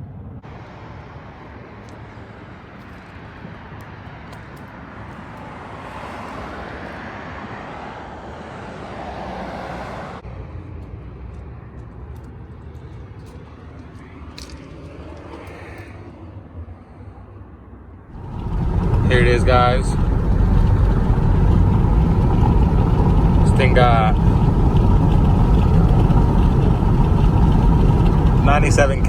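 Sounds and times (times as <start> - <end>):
low traffic rumble: 0.0 - 29.0
traffic rush: 0.0 - 29.0
vehicle passing: 0.5 - 11.2, 18.1 - 29.0.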